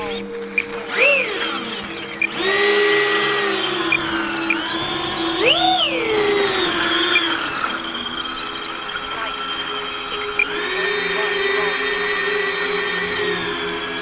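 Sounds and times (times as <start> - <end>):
electric ducted fan whining: 0.0 - 14.0.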